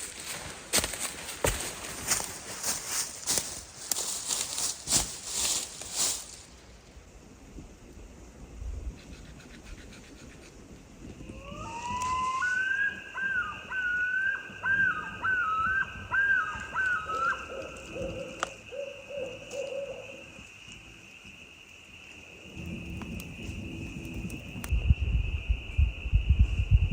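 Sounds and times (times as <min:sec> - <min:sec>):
loon calling: 0:11.3 - 0:20.2.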